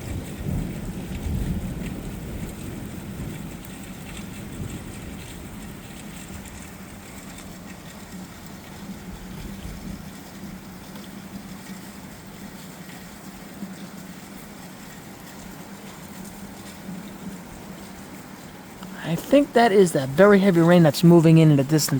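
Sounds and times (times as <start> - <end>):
distant thunderstorm rushing: 0.0 - 10.7.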